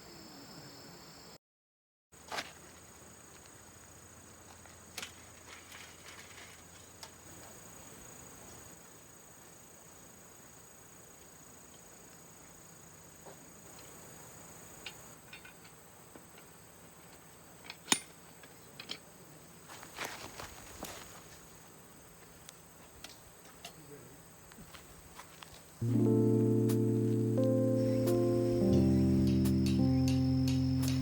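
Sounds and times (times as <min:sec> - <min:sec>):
insects trilling: 0:07.3 - 0:31.0.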